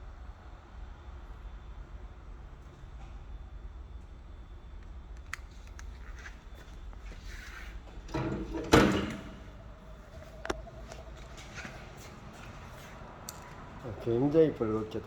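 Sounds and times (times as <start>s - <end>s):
wood stove rumbling: 6.0s - 12.7s.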